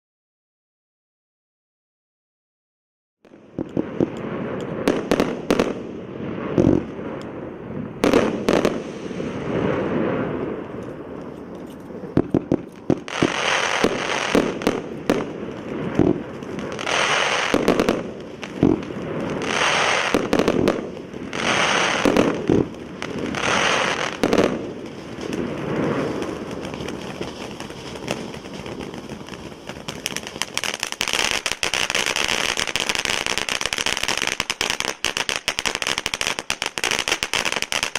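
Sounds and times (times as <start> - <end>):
firework fountain crackling spray: 3.4 - 37.9.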